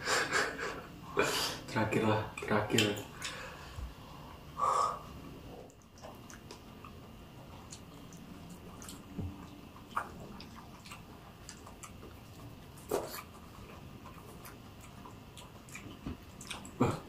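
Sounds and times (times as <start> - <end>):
faint chewing: 5.6 - 17.0.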